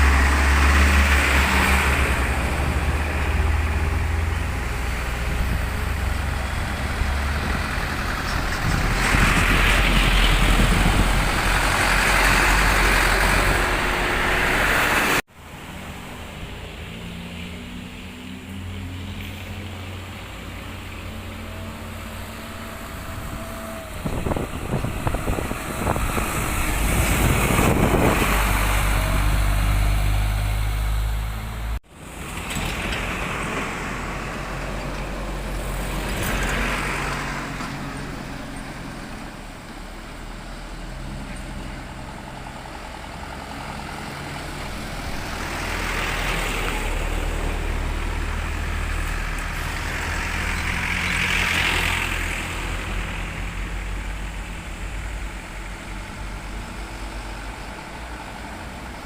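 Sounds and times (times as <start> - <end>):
vehicle rattling: 0.0 - 15.2, 19.4 - 59.0
traffic passing: 0.0 - 59.0.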